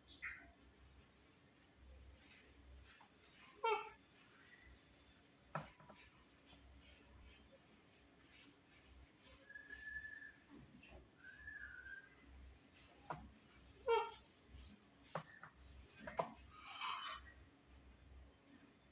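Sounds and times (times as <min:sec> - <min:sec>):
cricket chirping: 0:00.0 - 0:18.9
faint short whistles: 0:09.4 - 0:12.3.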